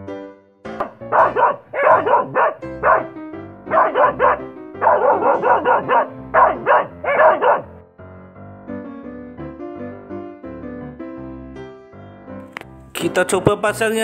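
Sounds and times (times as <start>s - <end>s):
piano music: 0.0s - 14.0s
dog barking: 0.8s - 7.8s.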